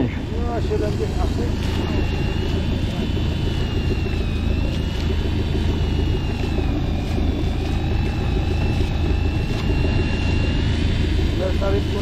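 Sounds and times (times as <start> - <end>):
boat engine rumbling: 0.0 - 12.0
high wavering whine: 0.0 - 12.0.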